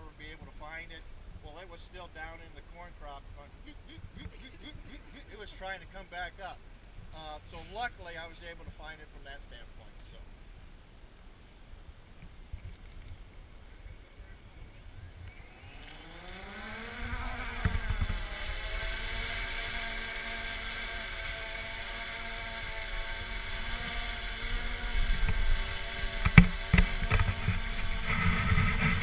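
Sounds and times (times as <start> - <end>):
drone motors whining: 11.3 - 29.0.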